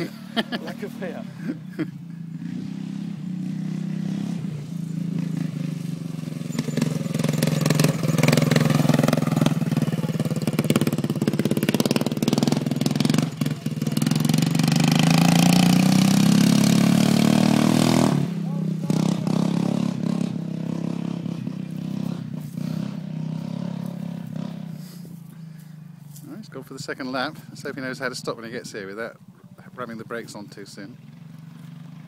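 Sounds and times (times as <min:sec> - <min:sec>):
lawn mower engine running hard: 0:00.0 - 0:25.3.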